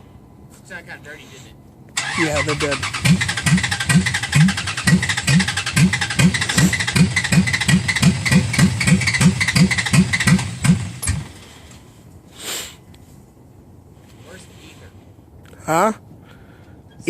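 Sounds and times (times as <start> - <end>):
engine cranking by starter: 2.0 - 11.8.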